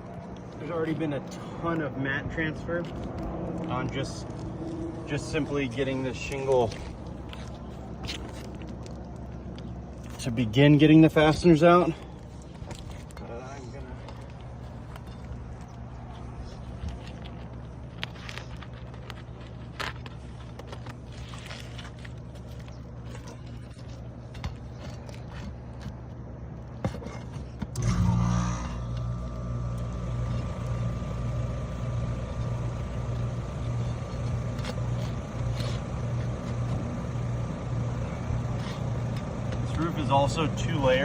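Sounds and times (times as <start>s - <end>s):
low pulsing engine drone: 0.0s - 41.0s
shingles scraping and clicking: 14.1s - 26.1s.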